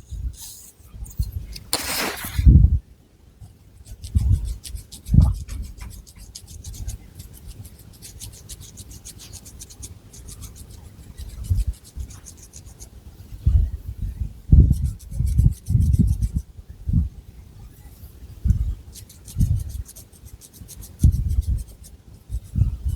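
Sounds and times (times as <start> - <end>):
fingernails scratching through hair: 0.4 - 2.5.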